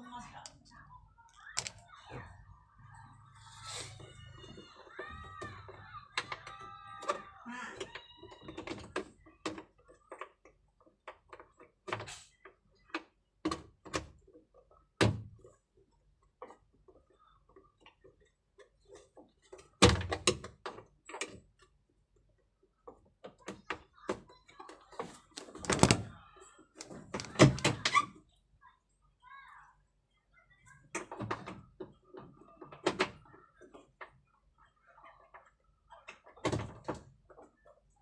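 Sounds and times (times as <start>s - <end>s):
tool prying at plastic: 1.6s - 1.8s, 25.3s - 26.1s, 26.8s - 27.9s.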